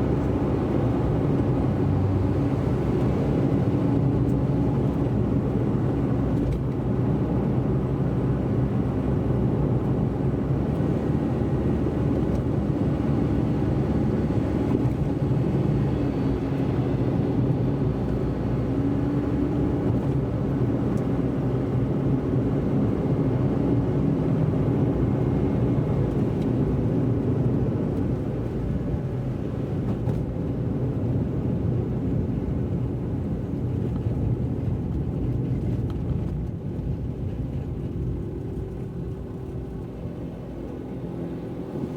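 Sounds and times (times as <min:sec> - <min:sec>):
car driving on wet road: 0:00.0 - 0:41.9
engine and tyre rumble: 0:00.0 - 0:41.9.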